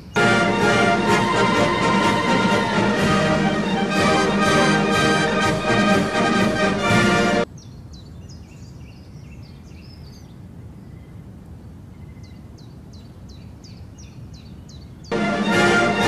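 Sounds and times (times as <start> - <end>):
brass band playing: 0.2 - 7.5, 15.1 - 16.0.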